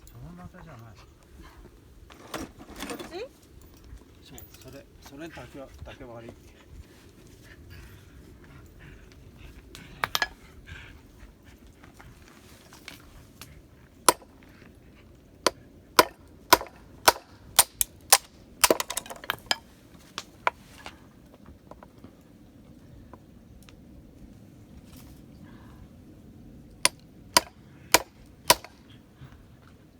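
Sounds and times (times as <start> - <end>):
blade chopping bamboo: 16.0 - 19.1, 27.4 - 28.8.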